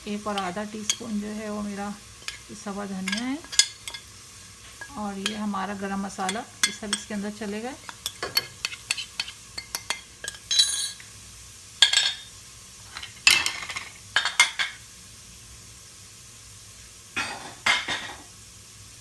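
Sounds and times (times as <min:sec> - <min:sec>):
faint sizzle of frying: 0:00.0 - 0:19.0
spoon clinking on a pot: 0:02.2 - 0:04.1, 0:04.8 - 0:05.5, 0:06.2 - 0:07.2, 0:07.8 - 0:11.0, 0:11.8 - 0:12.3
spoon scraping a pot: 0:02.2 - 0:05.5, 0:06.2 - 0:11.0.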